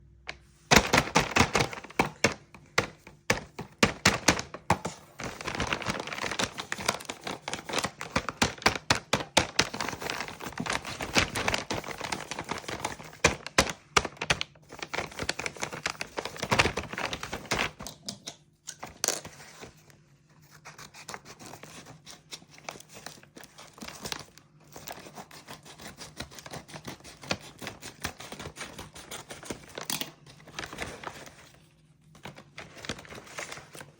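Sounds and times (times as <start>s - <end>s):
plastic packaging crinkling and tearing: 0.7s - 17.8s, 26.3s - 33.9s.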